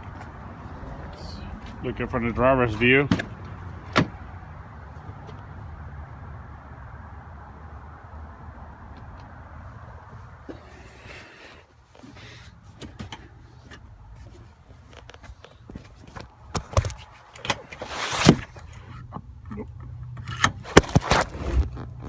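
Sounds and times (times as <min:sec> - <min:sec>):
loud scrape: 0:17.8 - 0:18.6, 0:20.6 - 0:21.8.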